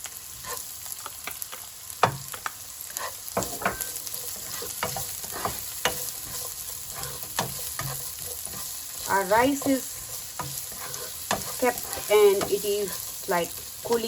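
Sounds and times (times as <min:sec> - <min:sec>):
onion sizzling in a wok: 0:00.0 - 0:14.0
stirring scrapes against wok: 0:02.9 - 0:14.0.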